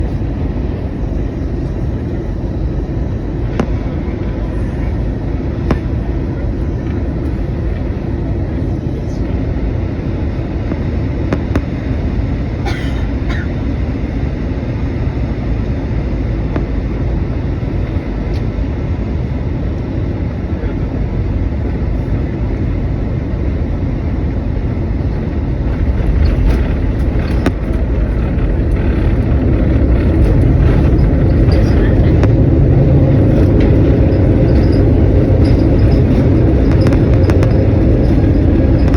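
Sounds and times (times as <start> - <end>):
jet engines rumbling: 0.0 - 38.9.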